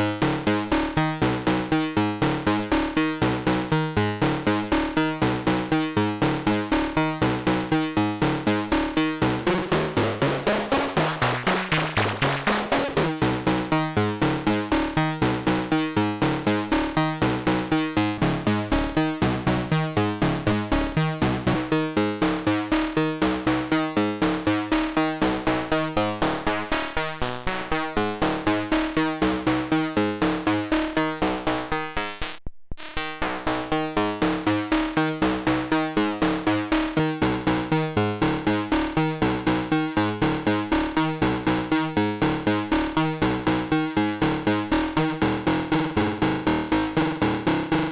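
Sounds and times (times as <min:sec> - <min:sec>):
synthesizer drone: 0:09.5 - 0:13.1
synthesizer repeating notes: 0:09.7 - 0:13.1.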